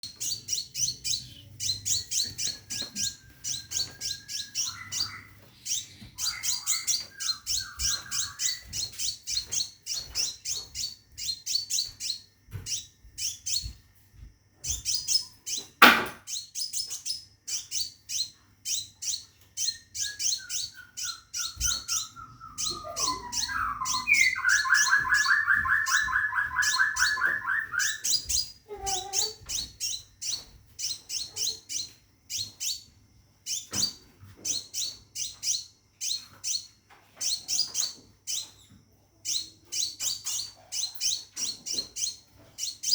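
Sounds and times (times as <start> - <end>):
bird chirping: 0.0 - 13.8, 14.6 - 42.9
sharp knock: 15.8 - 16.2
low rapid bird trill: 17.6 - 32.5.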